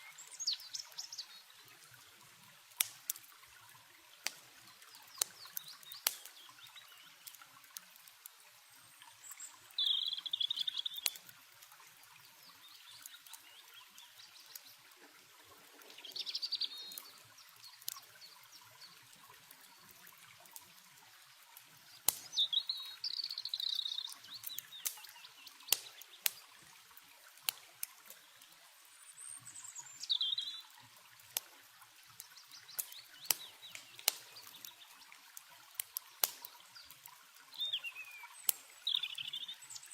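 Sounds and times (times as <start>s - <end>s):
songbird singing: 0.0s - 1.9s, 4.6s - 7.3s, 8.6s - 11.3s, 12.4s - 14.9s, 15.8s - 19.9s, 22.2s - 26.3s, 28.2s - 30.8s, 32.3s - 35.1s, 37.5s - 39.9s
water trickling: 0.0s - 39.9s
campfire crackling: 0.1s - 39.9s.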